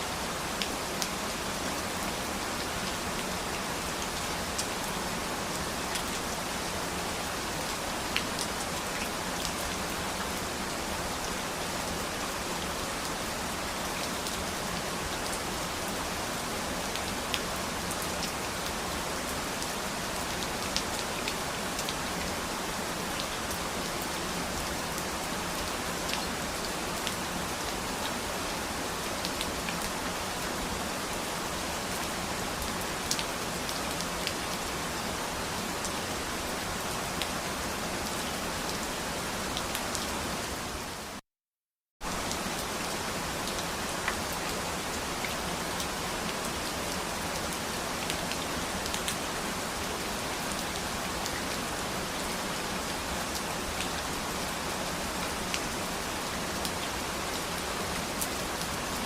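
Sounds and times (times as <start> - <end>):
steady rain hiss: 0.0 - 41.2, 42.0 - 59.0.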